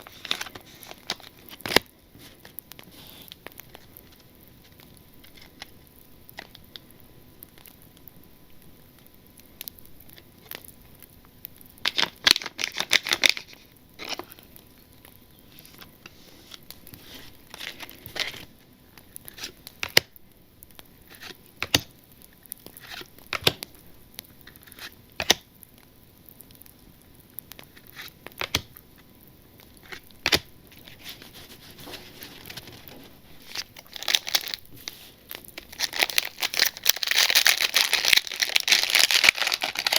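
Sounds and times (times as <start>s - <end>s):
wrappers crinkling and tearing: 0.0s - 6.6s, 11.8s - 14.5s, 15.5s - 20.0s, 29.7s - 39.9s.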